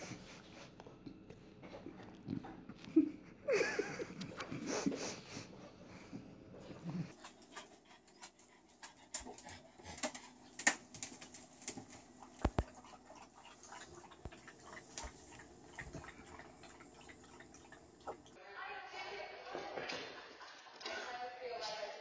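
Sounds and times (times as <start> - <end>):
faint steady hum: 0.0 - 18.4
dog claws clicking on floor: 8.8 - 12.7.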